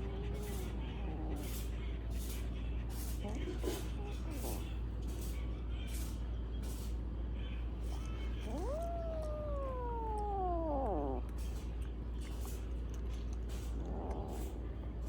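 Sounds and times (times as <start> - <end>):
cat meowing: 7.9 - 11.4.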